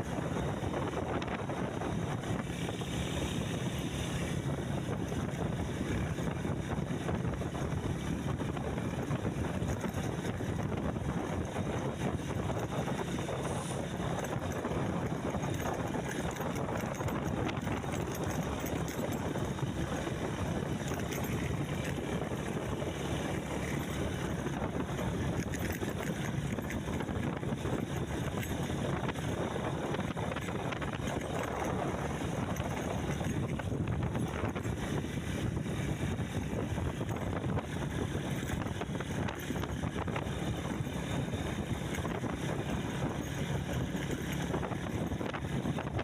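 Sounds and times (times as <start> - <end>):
wind on microphone: 0.0 - 46.0.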